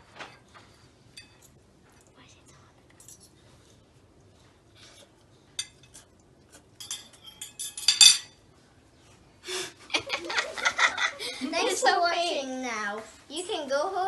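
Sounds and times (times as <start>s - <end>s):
fork clinking on plate: 6.8s - 8.4s.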